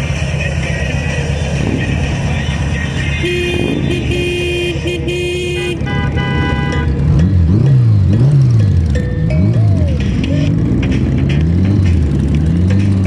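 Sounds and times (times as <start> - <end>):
motorcycle engines idling and revving: 0.0 - 13.0
higher multi-tone horn: 3.2 - 7.1
horn toots: 3.2 - 7.2.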